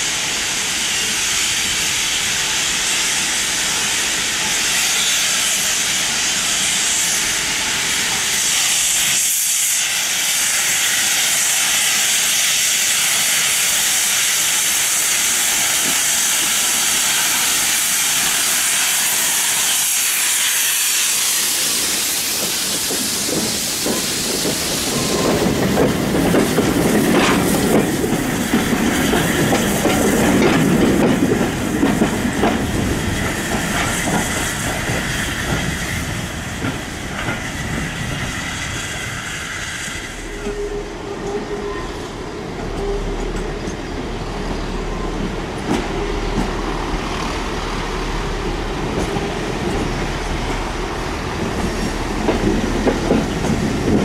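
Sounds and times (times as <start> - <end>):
loud hiss: 0.0 - 54.0
wheels clicking over rail joints: 22.2 - 38.2, 51.3 - 54.0.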